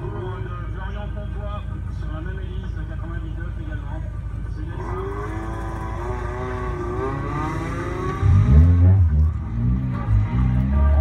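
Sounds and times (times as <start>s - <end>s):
car engine revving and launching: 4.8s - 10.8s.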